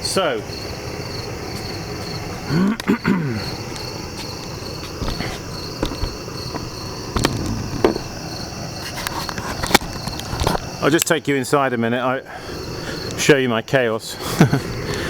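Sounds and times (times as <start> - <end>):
crickets chirping: 0.0 - 15.0
knocks and clicks: 3.8 - 8.2.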